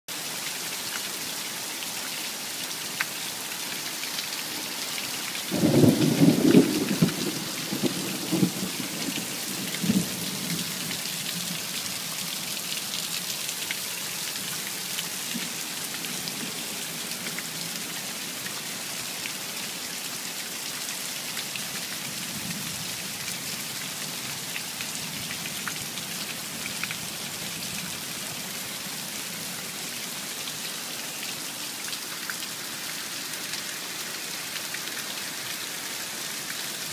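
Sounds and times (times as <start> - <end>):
steady rain: 0.1 - 36.9
thunder rumbling: 5.5 - 10.6.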